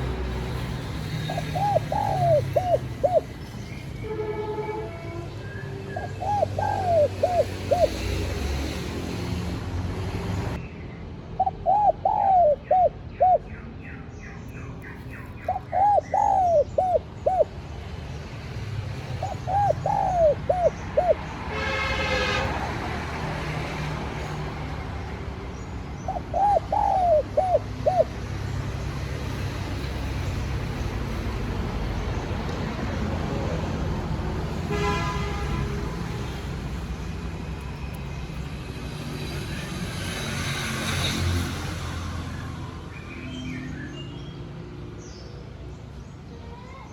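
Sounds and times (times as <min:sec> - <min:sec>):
dove cooing: 0:01.2 - 0:03.4, 0:06.0 - 0:08.4, 0:11.4 - 0:13.5, 0:15.4 - 0:17.6, 0:19.1 - 0:21.3, 0:26.0 - 0:28.2.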